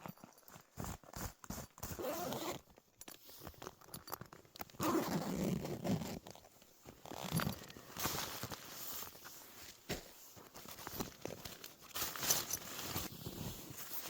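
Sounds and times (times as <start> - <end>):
zipper pulled: 1.2 - 2.7, 4.7 - 9.1.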